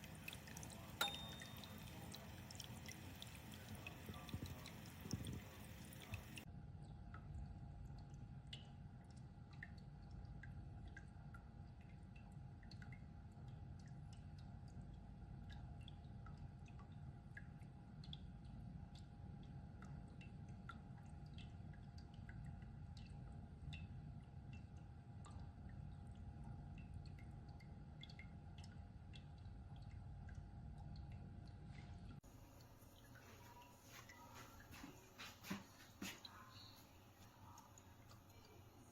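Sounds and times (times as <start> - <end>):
humidifier hum: 0.0 - 6.4, 25.2 - 38.9
water drips and pops: 0.0 - 38.9.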